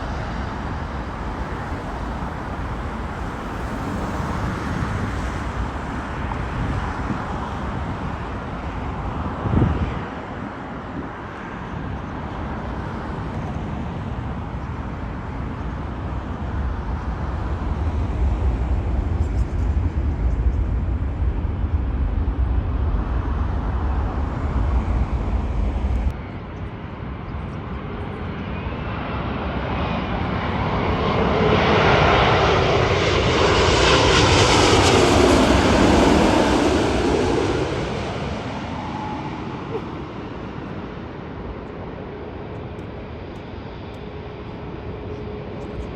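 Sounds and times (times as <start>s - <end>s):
jet airliner passing: 0.0s - 45.9s
low rumble: 16.8s - 26.2s.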